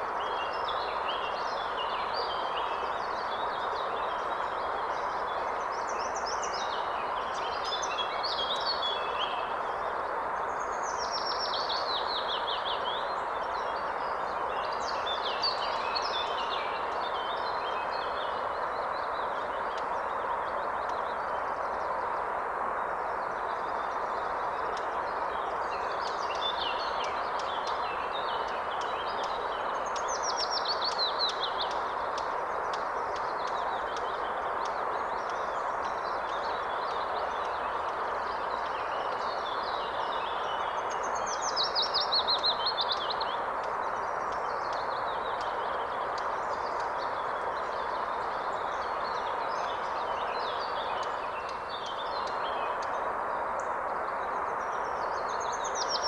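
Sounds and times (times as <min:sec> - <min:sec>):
flowing river: 0:00.0 - 0:56.0
songbirds singing: 0:22.8 - 0:56.0.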